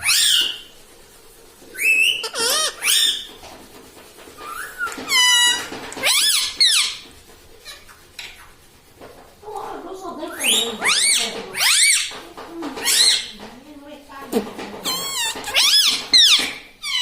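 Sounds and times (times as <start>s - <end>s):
parrot squeaky calls: 0.0s - 0.7s, 1.8s - 3.3s, 4.4s - 8.5s, 10.3s - 12.2s, 12.8s - 13.3s, 14.8s - 17.0s.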